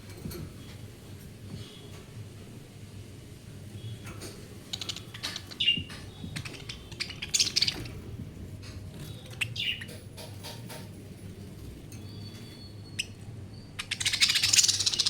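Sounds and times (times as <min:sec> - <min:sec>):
budgerigars chirping and warbling: 0:03.9 - 0:15.0.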